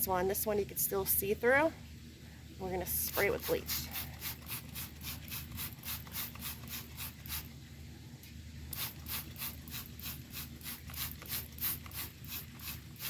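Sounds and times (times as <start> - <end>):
low steady hum: 0.0 - 13.0
spray bottle squirting: 3.1 - 7.5, 8.7 - 13.0.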